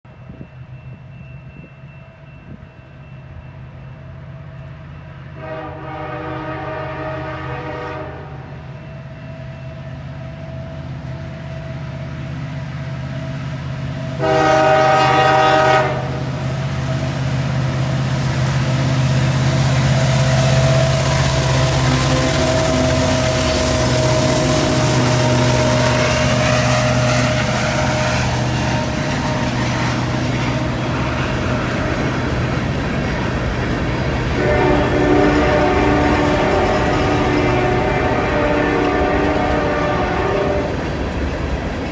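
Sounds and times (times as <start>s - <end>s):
diesel locomotive engines droning: 0.1s - 41.9s
wheels rumbling on rail: 0.1s - 41.9s
train horn blast: 5.3s - 8.8s, 14.1s - 16.7s, 19.3s - 32.1s, 34.2s - 40.9s.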